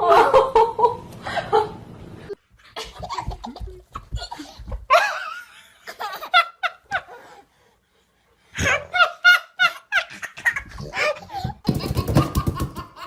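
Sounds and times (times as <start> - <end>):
baby laughing: 8.6 - 13.0.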